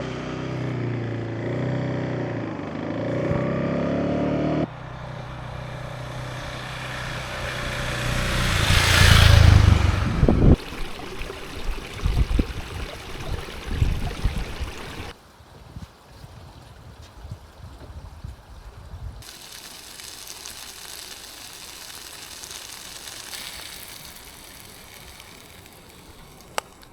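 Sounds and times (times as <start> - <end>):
motorcycle engine running: 4.7 - 15.1
rushing noise: 6.3 - 15.1.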